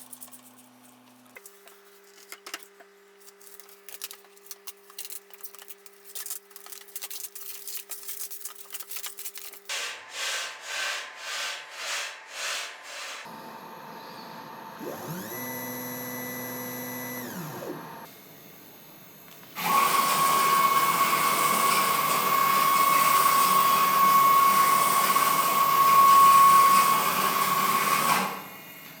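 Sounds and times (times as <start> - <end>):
high-speed motor whining: 13.3 - 18.1
electric motor spinning: 14.4 - 18.1.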